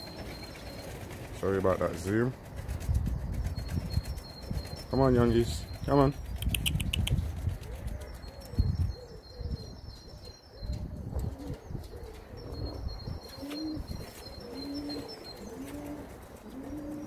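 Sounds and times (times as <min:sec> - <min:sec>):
pigeons cooing: 0:06.4 - 0:17.0.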